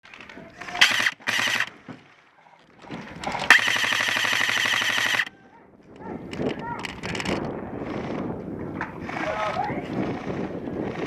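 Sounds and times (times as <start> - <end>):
airsoft gun firing bursts: 0.7 - 1.8, 3.5 - 5.3.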